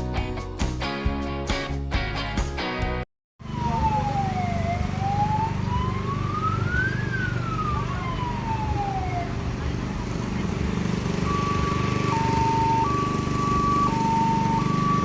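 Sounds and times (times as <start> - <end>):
music: 0.0 - 3.0
siren wailing: 3.4 - 9.5, 11.1 - 15.0
diesel truck engine running: 9.6 - 15.0.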